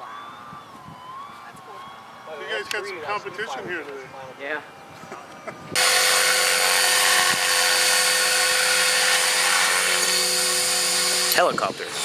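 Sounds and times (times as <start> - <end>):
model helicopter whine: 5.7 - 12.0.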